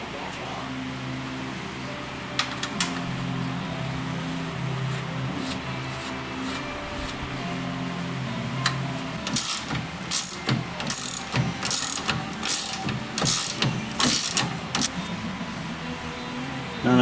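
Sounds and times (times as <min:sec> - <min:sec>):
ratchet wrench clicking: 0:09.3 - 0:15.0.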